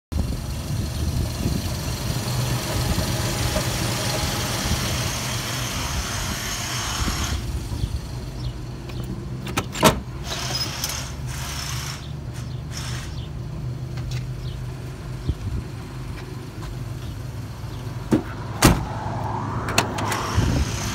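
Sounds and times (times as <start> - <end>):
car engine idling: 0.2 - 6.8, 11.0 - 20.9.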